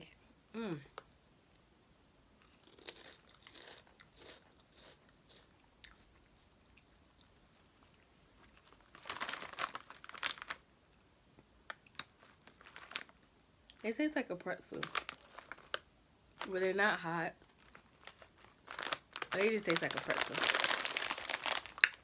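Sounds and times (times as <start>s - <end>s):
person chewing crunchy snacks: 2.4s - 10.6s, 17.5s - 22.0s.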